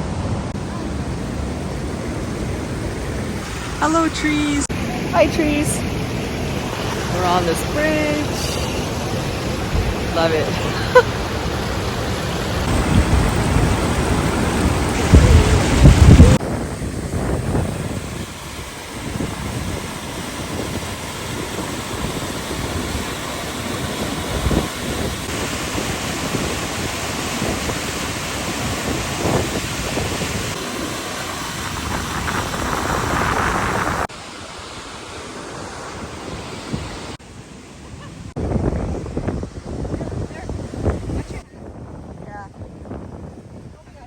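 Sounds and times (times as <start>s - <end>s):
river and waterfall rushing: 0.0s - 41.4s
wind buffeting microphone: 6.5s - 34.1s, 38.0s - 44.0s.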